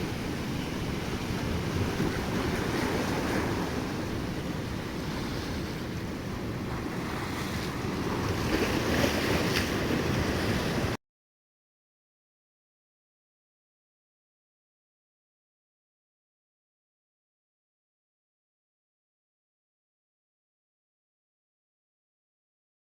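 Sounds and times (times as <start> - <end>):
sea waves: 0.0 - 11.0
wind buffeting microphone: 0.0 - 11.0.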